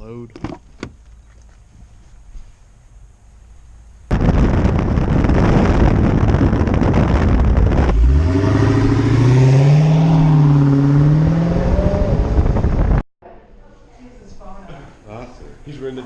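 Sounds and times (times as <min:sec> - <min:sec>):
car engine revving: 0:06.8 - 0:13.0.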